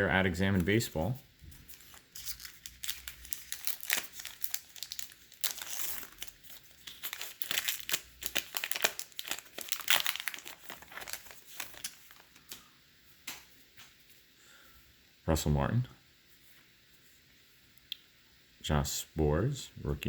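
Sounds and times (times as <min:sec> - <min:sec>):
cards shuffling: 0:00.5 - 0:12.7
wrapper tearing and crinkling: 0:01.7 - 0:12.6.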